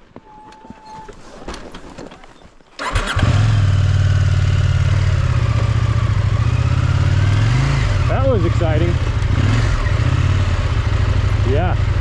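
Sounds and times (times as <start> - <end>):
motorcycle engine starting and idling: 2.8 - 12.0.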